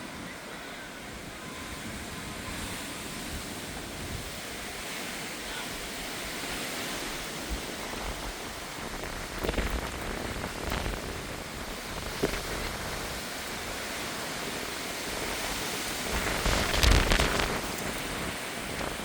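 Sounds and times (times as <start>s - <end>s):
strong wind rushing: 5.8s - 19.0s.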